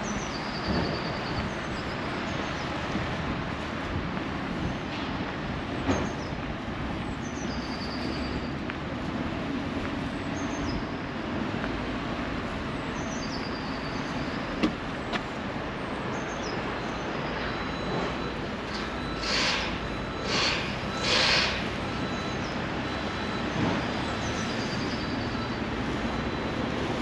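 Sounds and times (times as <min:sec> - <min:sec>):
train rumble and hiss: 0:17.9 - 0:27.0.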